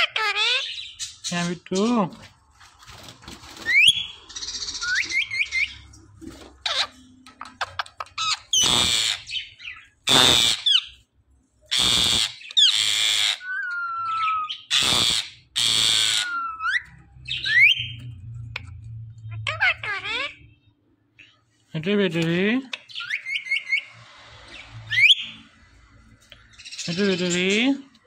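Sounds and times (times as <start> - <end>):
parrot squawking: 0.0 - 2.1, 3.6 - 5.9, 6.6 - 11.0, 11.7 - 18.7, 19.3 - 20.6, 22.7 - 25.5, 26.6 - 27.8.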